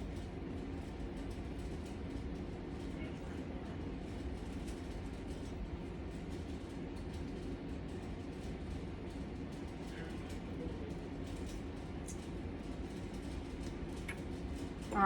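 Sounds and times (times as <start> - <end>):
low rumbling hum: 9.1 - 15.0.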